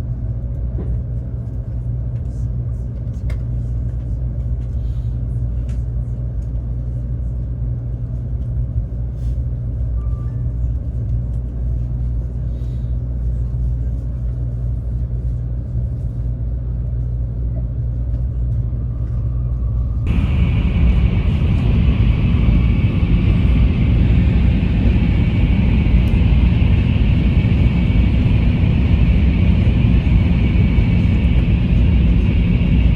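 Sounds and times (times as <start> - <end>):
train low rumble: 0.0 - 32.9.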